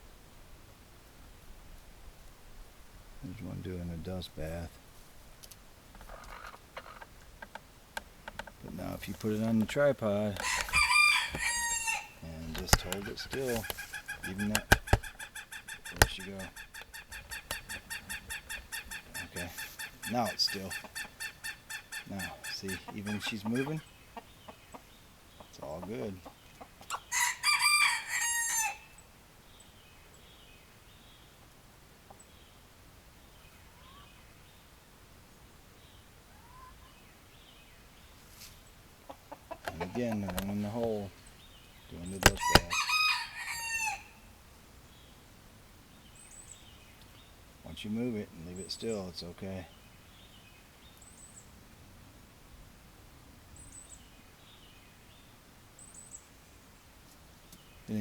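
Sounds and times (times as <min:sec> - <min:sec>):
rooster crowing: 0:10.4 - 0:19.1, 0:27.1 - 0:29.0, 0:42.3 - 0:44.3
faint bird chirps: 0:32.1 - 0:38.8, 0:43.5 - 0:51.6, 0:53.5 - 0:58.0.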